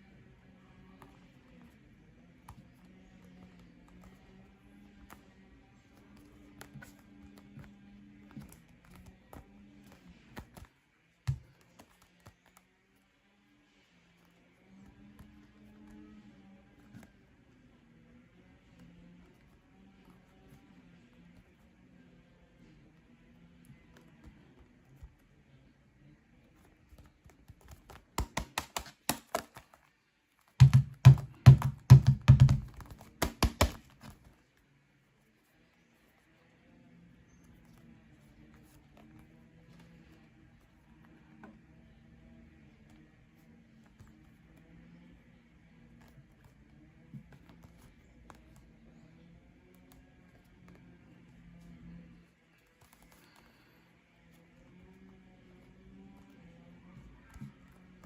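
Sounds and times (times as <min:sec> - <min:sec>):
faint background music: 0:00.0 - 0:58.0
fingertips tapping on a football: 0:00.2 - 0:12.7, 0:14.2 - 0:17.6, 0:26.4 - 0:34.4, 0:37.2 - 0:58.0
fingertip taps on a football: 0:06.0 - 0:12.6, 0:26.9 - 0:29.8, 0:30.6 - 0:34.3, 0:57.0 - 0:58.0
hollow thud: 0:30.6 - 0:34.2.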